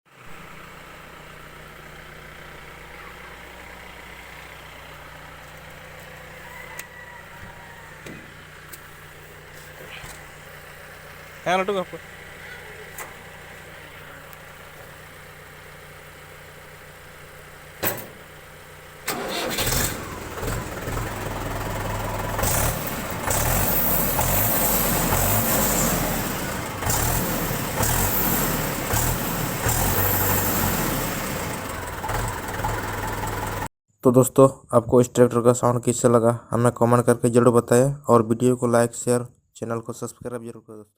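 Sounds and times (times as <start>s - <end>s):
tractor diesel engine running: 0.1s - 33.7s.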